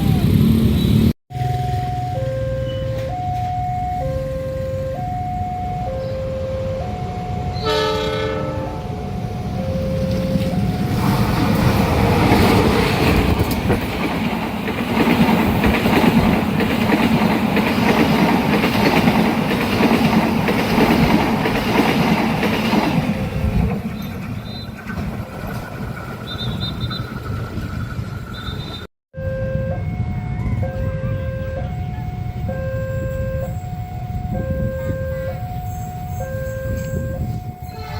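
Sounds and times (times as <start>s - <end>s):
train wheels clattering on rails: 9.9s - 28.9s.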